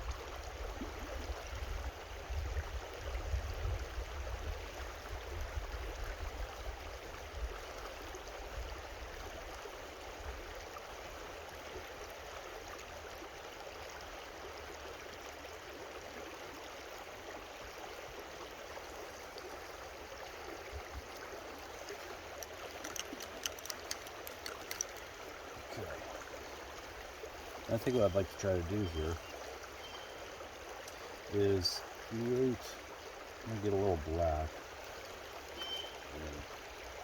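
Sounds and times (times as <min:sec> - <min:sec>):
creek water flowing: 0:00.0 - 0:37.0
faint clicks: 0:21.9 - 0:25.2, 0:30.8 - 0:31.1.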